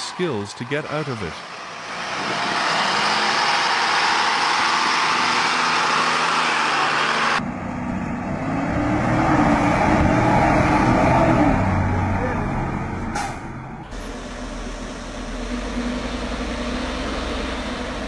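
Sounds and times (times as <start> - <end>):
truck engine labouring: 0.0 - 18.0
low engine drone: 7.2 - 18.0.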